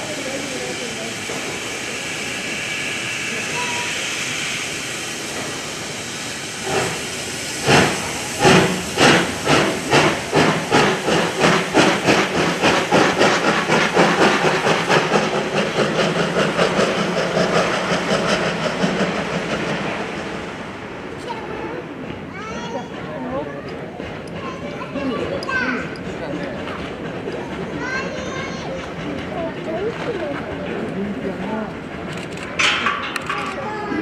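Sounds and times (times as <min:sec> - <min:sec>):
steam locomotive exhaust chuffs: 0:00.0 - 0:21.3
steam hissing: 0:00.0 - 0:23.0.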